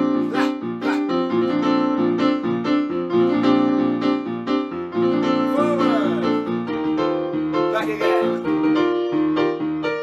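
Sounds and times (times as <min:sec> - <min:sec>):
piano chords: 0:00.0 - 0:10.0.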